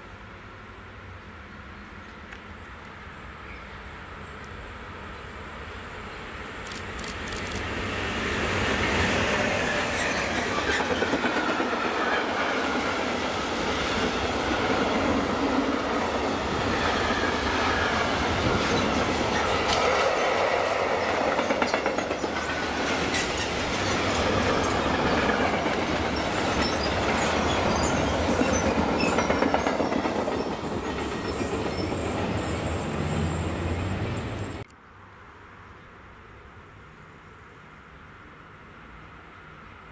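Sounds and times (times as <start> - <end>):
locomotive whine: 3.1 - 34.7
train wheels rumbling and clattering: 6.6 - 34.6
high wheel squeal: 26.1 - 34.6.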